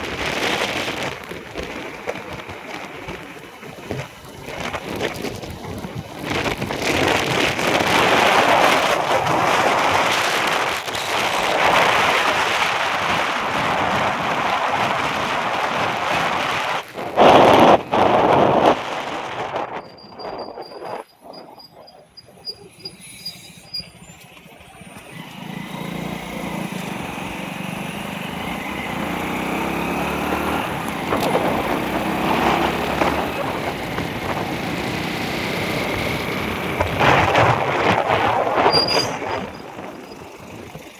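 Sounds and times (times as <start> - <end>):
truck passing: 22.3 - 40.9.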